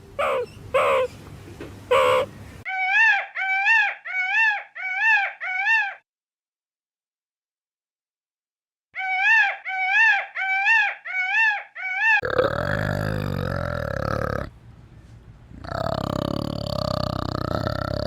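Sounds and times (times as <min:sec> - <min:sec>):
high-pitched animal calls: 0:00.2 - 0:01.2, 0:01.9 - 0:06.0, 0:09.0 - 0:12.5
low rough animal call: 0:12.2 - 0:14.5, 0:15.6 - 0:18.0.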